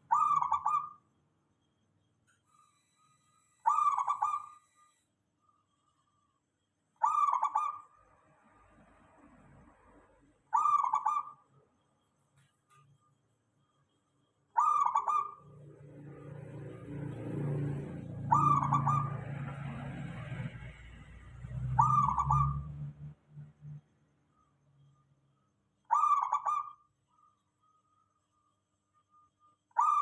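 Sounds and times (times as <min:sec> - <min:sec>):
dove trilling coos: 0:00.0 - 0:01.0, 0:03.5 - 0:05.0, 0:07.0 - 0:07.9, 0:10.5 - 0:11.4, 0:14.6 - 0:15.7, 0:17.8 - 0:20.5, 0:21.7 - 0:22.8, 0:25.9 - 0:26.9, 0:29.8 - 0:30.0.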